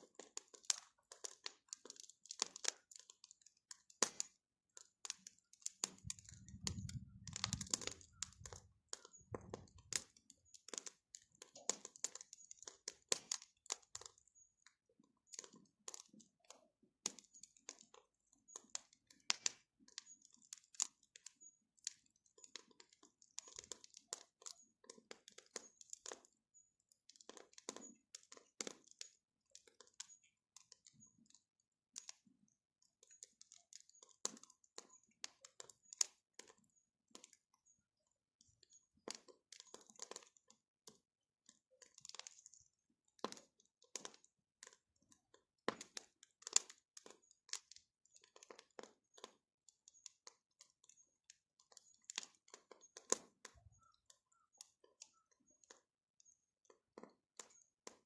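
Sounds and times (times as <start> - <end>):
wood fire crackling: 0.1 - 4.3, 5.0 - 14.1, 17.0 - 26.3, 27.1 - 31.3, 33.1 - 37.3, 39.0 - 41.0, 41.8 - 42.6, 43.2 - 44.8, 45.7 - 49.4, 51.7 - 53.9.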